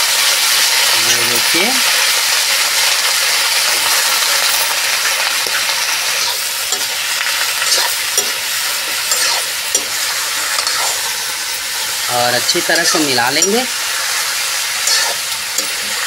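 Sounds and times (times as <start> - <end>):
food sizzling in hot oil: 0.0 - 16.0
metal spatula scraping a pan: 3.5 - 16.0.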